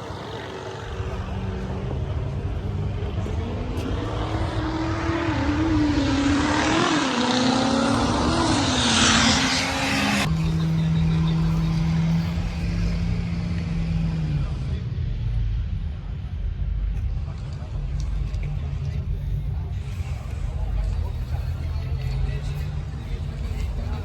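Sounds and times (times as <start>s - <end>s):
diesel truck engine revving: 0.0s - 24.0s.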